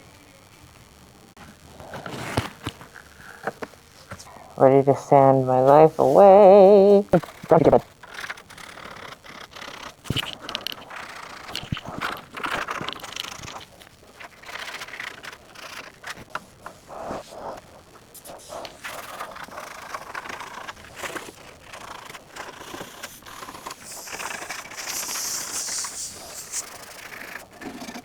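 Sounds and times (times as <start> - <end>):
sandpaper scraping metal: 22.9 - 26.7.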